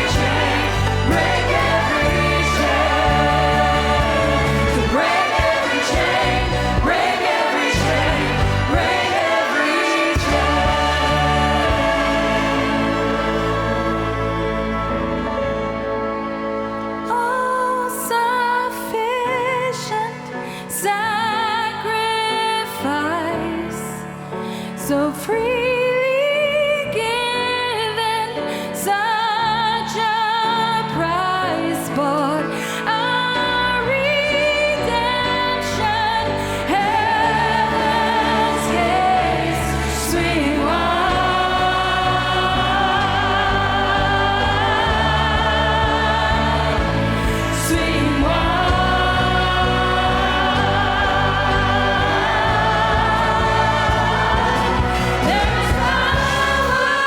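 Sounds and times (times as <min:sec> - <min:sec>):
orchestra accompanying: 0:00.0 - 0:19.9, 0:33.6 - 0:57.0
choir singing in harmony: 0:00.0 - 0:26.0, 0:26.7 - 0:57.0.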